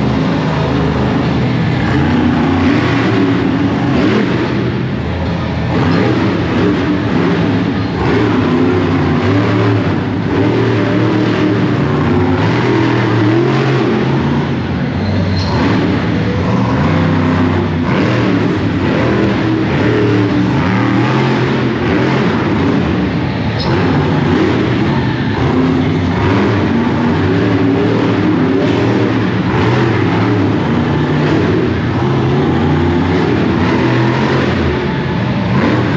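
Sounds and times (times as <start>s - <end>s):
monster truck engines revving: 0.0s - 35.9s.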